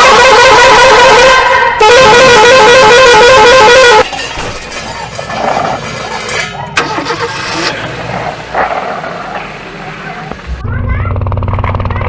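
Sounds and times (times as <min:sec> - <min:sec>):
warbling toy horn tone: 0:00.0 - 0:04.1.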